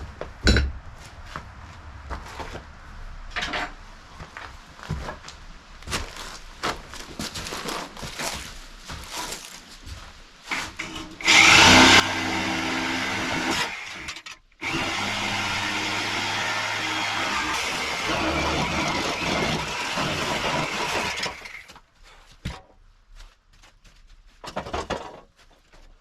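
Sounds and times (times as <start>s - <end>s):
power tool running: 10.6s - 21.6s.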